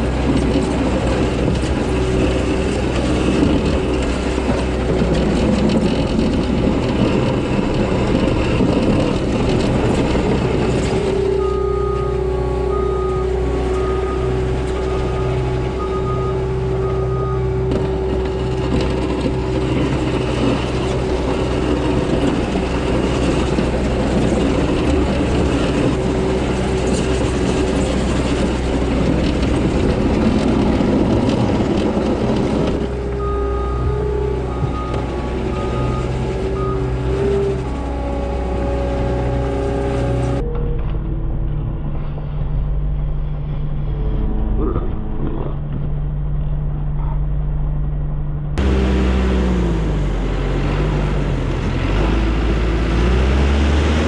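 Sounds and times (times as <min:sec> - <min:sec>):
diesel engine running: 0:00.0 - 0:54.0
backup alarm beeping: 0:11.2 - 0:17.7, 0:33.0 - 0:38.8.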